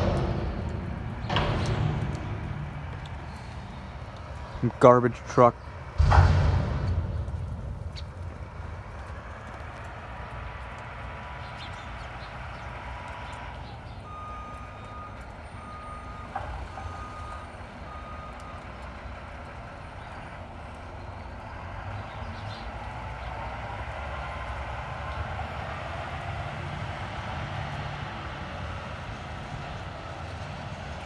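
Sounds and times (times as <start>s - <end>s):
garbage truck engine rumble: 0.0s - 31.0s
reversing alarm beeps: 14.1s - 18.7s.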